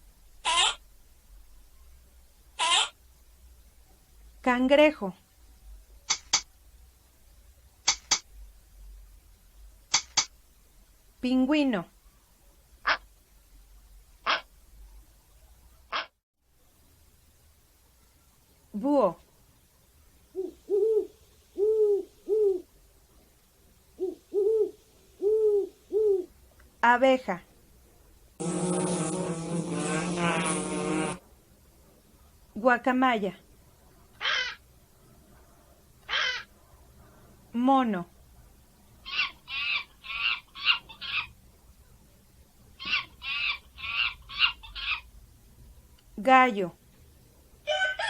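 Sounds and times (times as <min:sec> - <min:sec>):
monkey high-pitched calls: 0:00.4 - 0:00.8, 0:02.6 - 0:03.0, 0:34.2 - 0:34.6, 0:36.1 - 0:36.5, 0:39.0 - 0:41.4, 0:42.8 - 0:45.1
owl hooting: 0:00.4 - 0:00.8, 0:02.6 - 0:03.0, 0:14.2 - 0:14.5, 0:20.3 - 0:22.7, 0:24.0 - 0:26.3, 0:34.2 - 0:34.6, 0:36.1 - 0:36.5, 0:39.0 - 0:41.3, 0:42.8 - 0:45.1.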